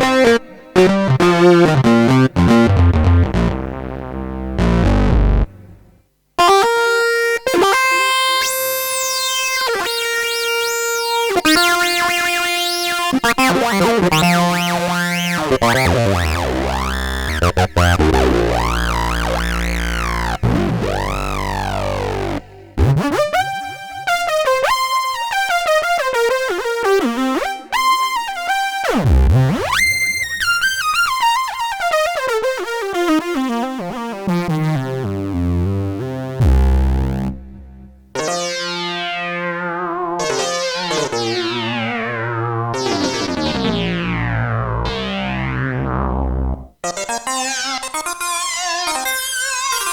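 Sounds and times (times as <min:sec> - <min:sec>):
low synth bass: 0:01.9 - 0:06.0, 0:15.4 - 0:23.1, 0:36.4 - 0:38.1, 0:41.2 - 0:46.7
synthesizer sweeping filter pad: 0:10.1 - 0:23.0, 0:38.2 - 0:46.7
repeated decaying synth notes: 0:11.0 - 0:23.8, 0:35.6 - 0:49.9
bright stepped synth notes: 0:11.4 - 0:23.7, 0:36.4 - 0:49.9.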